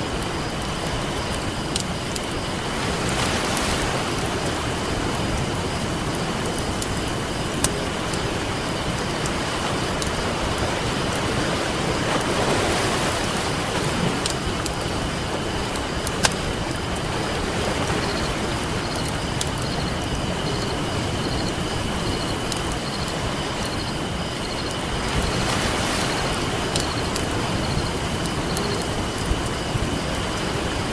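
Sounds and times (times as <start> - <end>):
campfire crackling and popping: 0.0 - 25.4, 26.4 - 30.9
ocean waves washing on beach: 0.0 - 30.9.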